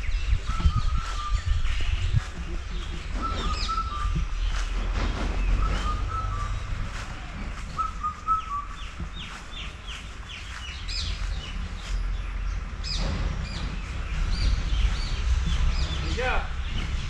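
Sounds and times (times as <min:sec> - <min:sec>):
birds chirping: 0:00.0 - 0:17.0
whistled bird notes: 0:02.9 - 0:04.8, 0:05.4 - 0:06.9, 0:07.6 - 0:09.7.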